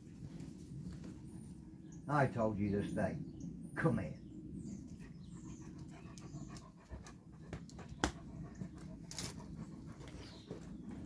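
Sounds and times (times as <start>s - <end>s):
dog panting: 4.9s - 11.0s.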